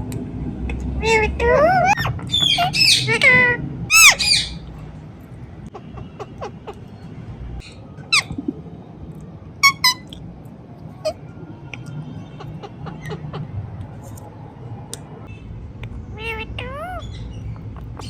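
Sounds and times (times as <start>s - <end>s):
parrot squawking: 1.0s - 4.6s, 15.3s - 18.0s.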